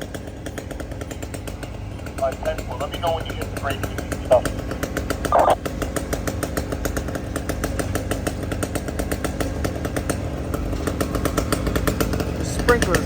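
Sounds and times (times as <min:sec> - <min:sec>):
engine running with rapid pulse: 0:00.0 - 0:13.0.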